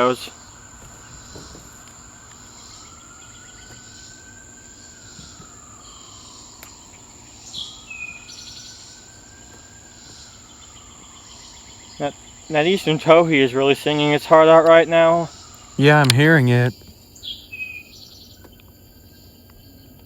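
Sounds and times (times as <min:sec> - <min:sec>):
faint whine: 0:15.8 - 0:16.7.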